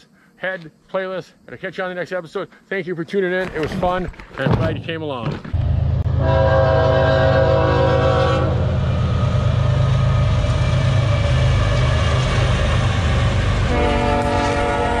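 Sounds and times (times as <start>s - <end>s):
diesel locomotives rumbling past: 5.6s - 15.0s
locomotive air horn: 6.1s - 9.1s, 13.6s - 15.0s.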